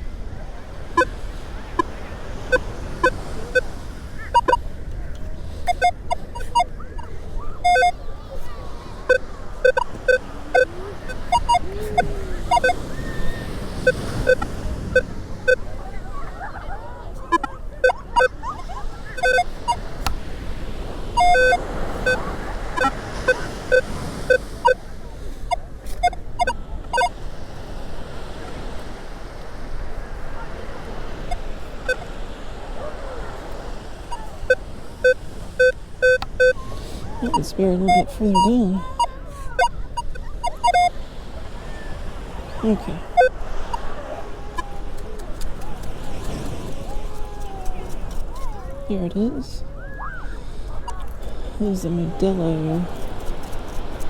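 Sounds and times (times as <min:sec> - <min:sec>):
ocean surf washing: 0:00.0 - 0:54.0
metal detector beeps: 0:01.0 - 0:04.6, 0:05.2 - 0:15.7, 0:17.2 - 0:20.2, 0:21.1 - 0:27.2, 0:31.2 - 0:32.1, 0:34.1 - 0:41.0, 0:42.6 - 0:43.9, 0:50.8 - 0:53.8.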